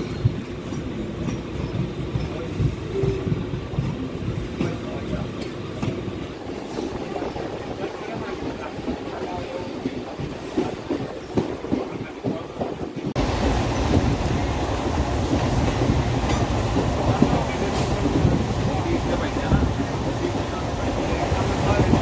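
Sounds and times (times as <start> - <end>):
moving train rumble and rush: 0.0 - 22.0
train wheels clacking over rail joints: 8.1 - 22.0.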